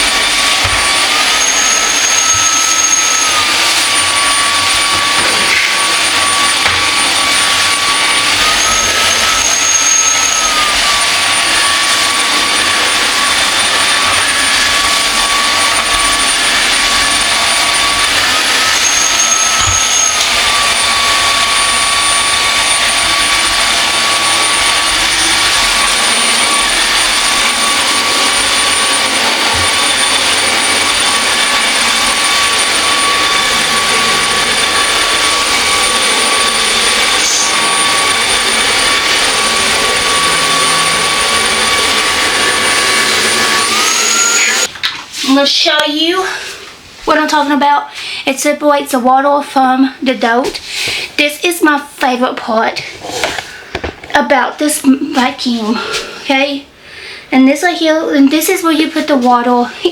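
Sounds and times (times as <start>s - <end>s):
vacuum mop whooshing: 0.0s - 48.2s, 52.5s - 54.1s, 55.2s - 56.5s.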